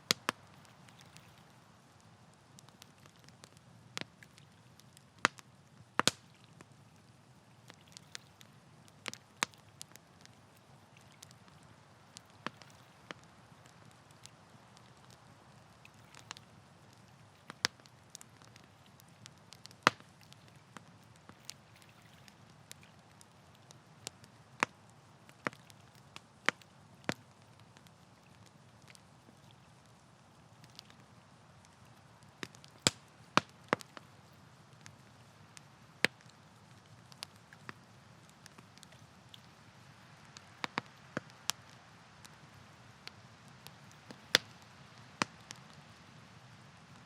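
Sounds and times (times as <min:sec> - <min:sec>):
campfire crackling and popping: 0:00.0 - 0:47.0.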